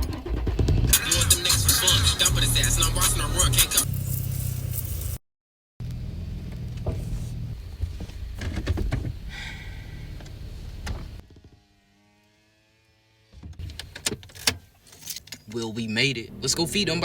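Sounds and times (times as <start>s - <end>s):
pickup truck engine running: 0.0s - 5.2s.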